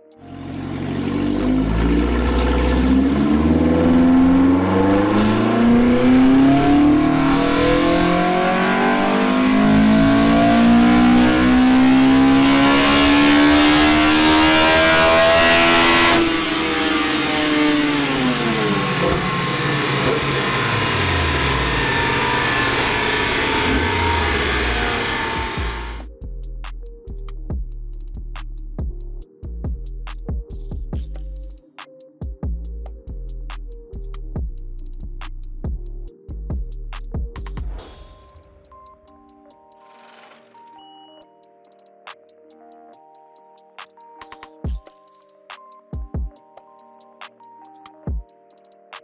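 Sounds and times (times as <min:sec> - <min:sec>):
engine revving on a dyno: 0:00.4 - 0:26.0.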